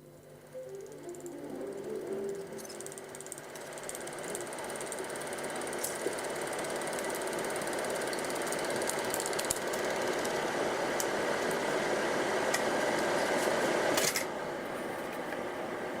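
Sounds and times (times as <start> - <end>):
film projector clattering: 1.1 - 11.6.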